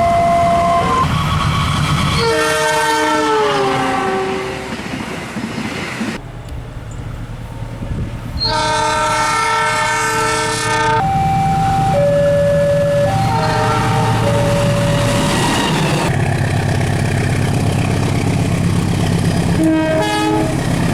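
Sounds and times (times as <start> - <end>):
train air horn blasts: 0.0 - 1.1, 2.2 - 4.7, 8.4 - 15.2, 19.5 - 20.7
passing train rumble: 0.0 - 20.9.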